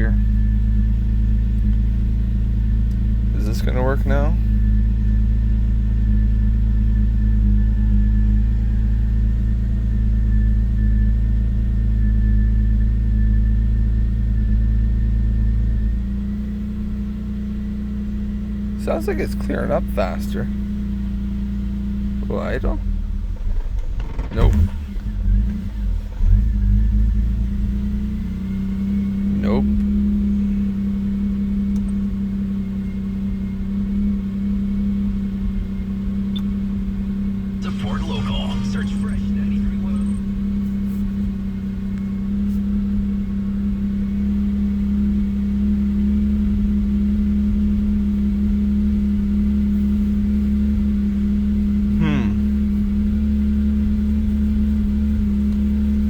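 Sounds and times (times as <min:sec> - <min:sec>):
car engine idling: 0:14.2 - 0:46.4
faint high whine: 0:37.6 - 0:40.4.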